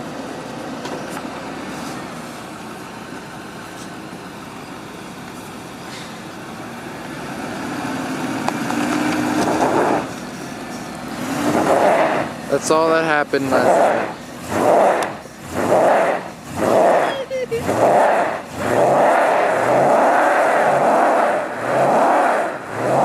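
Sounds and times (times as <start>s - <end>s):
truck engine revving: 0.0s - 23.0s.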